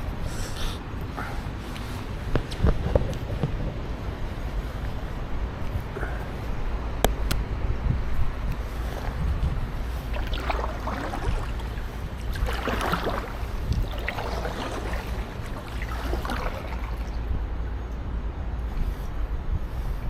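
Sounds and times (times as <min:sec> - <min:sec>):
wind rumble on microphone: 0:00.0 - 0:20.0
paddle splashing in water: 0:08.6 - 0:17.4.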